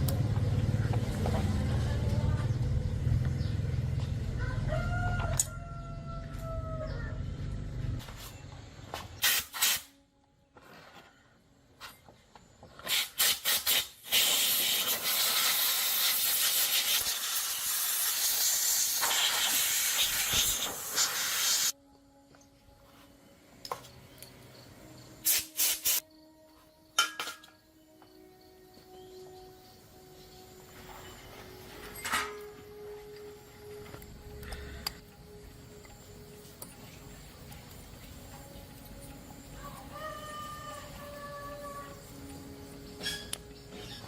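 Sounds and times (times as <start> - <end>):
loud steady hiss: 12.8 - 21.8, 25.2 - 26.0.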